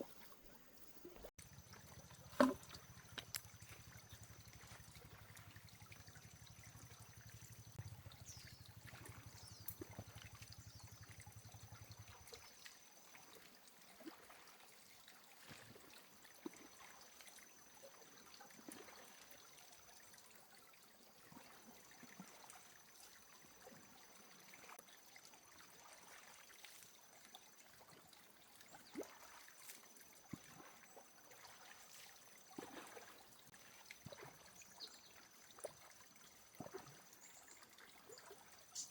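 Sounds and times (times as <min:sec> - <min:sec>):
trickling lapping water: 0:01.0 - 0:38.9
small knocks and ticks: 0:02.1 - 0:04.8.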